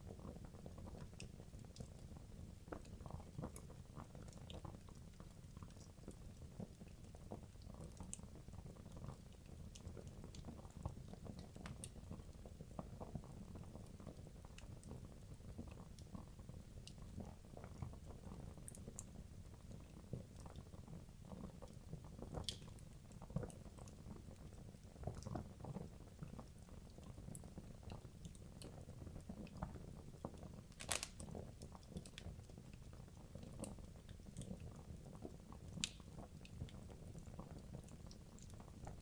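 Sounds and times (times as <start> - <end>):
fire crackling and popping: 27.9 - 38.7.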